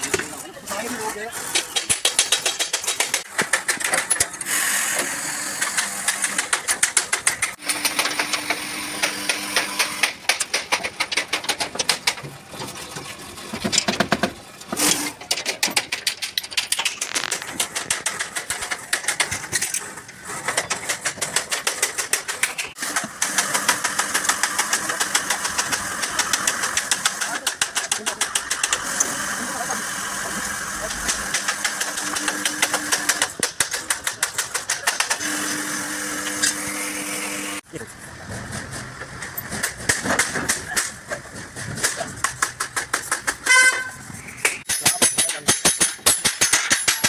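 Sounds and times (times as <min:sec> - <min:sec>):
rapid sharp taps on metal: 0:05.7 - 0:12.3, 0:41.8 - 0:47.0.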